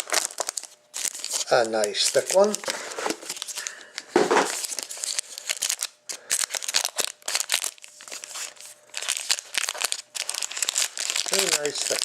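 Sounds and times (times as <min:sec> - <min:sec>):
plastic wrapping crinkling and tearing: 0:00.0 - 0:12.0.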